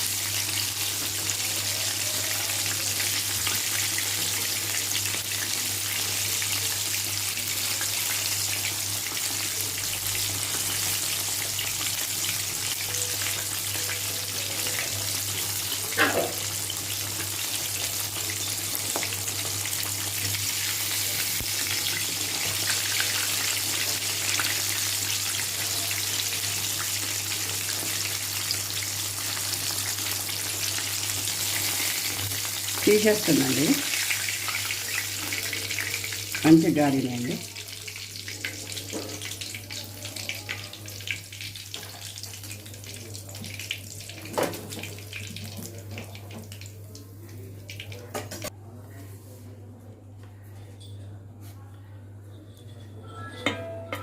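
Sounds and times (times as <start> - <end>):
chicken sizzling in hot oil: 0.0 - 48.4.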